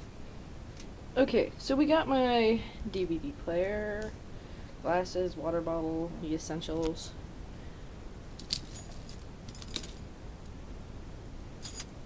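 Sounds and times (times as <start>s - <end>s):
small objects clicking and jingling: 8.4s - 10.0s.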